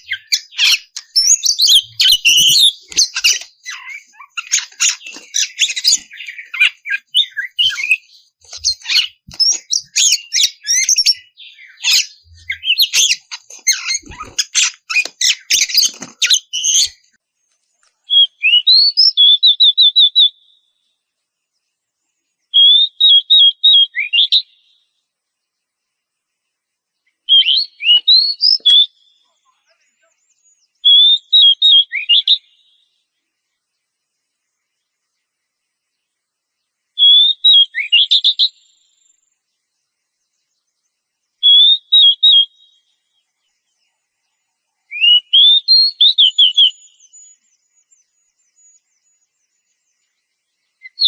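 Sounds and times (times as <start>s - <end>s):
bird trilled phrases: 0.0s - 16.9s
bird singing: 0.0s - 51.0s.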